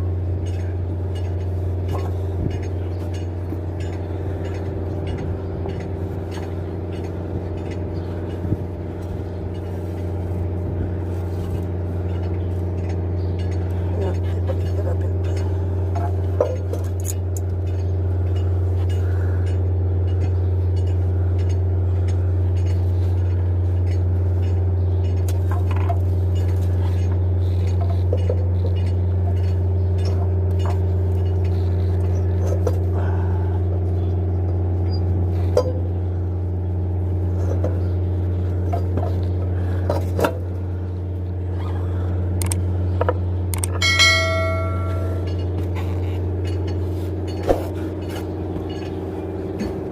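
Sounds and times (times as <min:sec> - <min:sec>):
light metallic clinks: 0:43.6 - 0:49.8
short ringing tone: 0:43.7 - 0:45.5.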